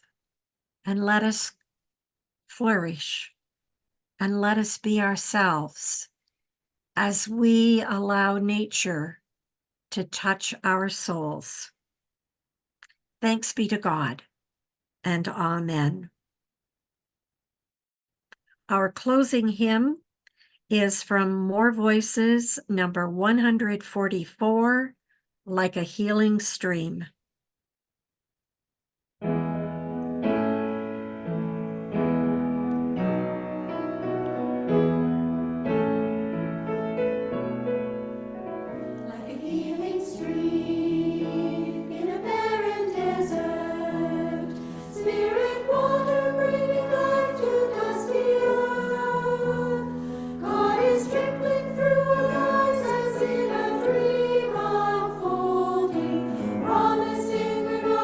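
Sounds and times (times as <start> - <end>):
keyboard chords: 29.2 - 58.0
group singing a hymn: 38.8 - 58.0.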